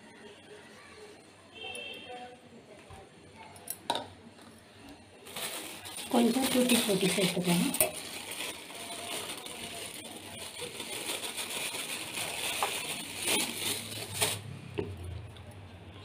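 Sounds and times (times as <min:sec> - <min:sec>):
rustling hiss of pouring: 0:05.3 - 0:14.5.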